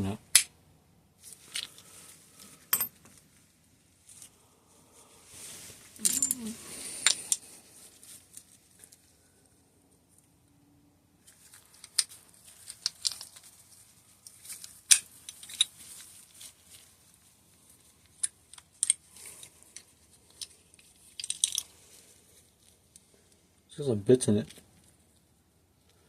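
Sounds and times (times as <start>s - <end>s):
small metal clicks and taps: 18.2s - 21.7s.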